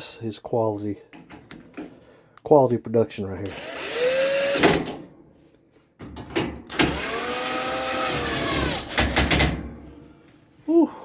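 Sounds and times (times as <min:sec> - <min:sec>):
small electric motor whirring: 0:03.5 - 0:04.6, 0:06.9 - 0:09.0.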